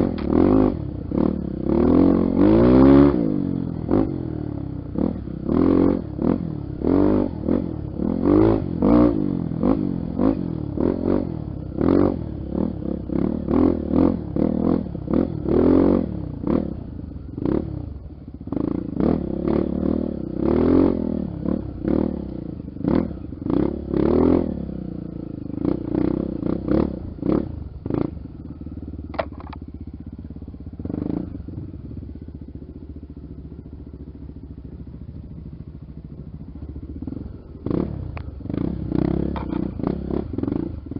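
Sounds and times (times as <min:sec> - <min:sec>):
motorcycle engine revving: 0:00.0 - 0:40.9
engine knocks and clatter: 0:25.3 - 0:40.9.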